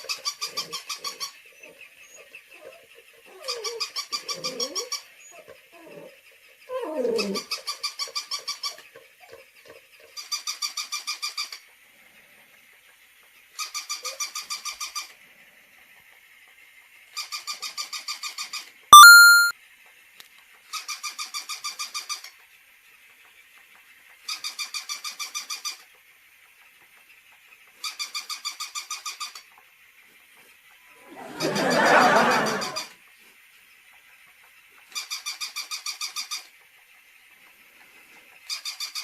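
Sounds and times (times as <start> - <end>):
dog whining: 3.3 - 6.1, 6.7 - 7.5
electronic toy dog yapping: 19.0 - 19.5
loud electronic tone: 19.0 - 19.5.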